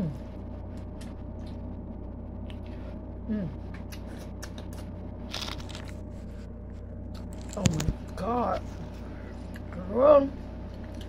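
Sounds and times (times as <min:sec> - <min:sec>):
person humming mmm: 0:00.0 - 0:00.3, 0:03.2 - 0:04.7
steady low hum: 0:00.0 - 0:11.0
person chewing food: 0:00.7 - 0:01.6, 0:03.6 - 0:09.8, 0:10.6 - 0:11.0
mouth clicks and smacks: 0:03.7 - 0:04.9.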